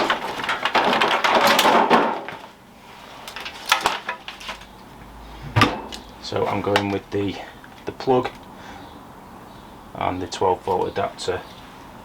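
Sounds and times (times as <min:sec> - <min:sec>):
packaging rustling: 0:03.2 - 0:04.8.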